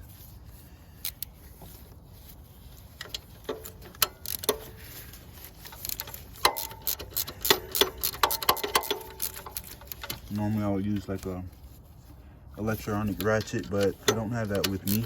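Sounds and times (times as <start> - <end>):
ratchet wrench clicking: 1.0 - 1.3, 3.0 - 4.8, 5.4 - 10.3, 13.0 - 15.0.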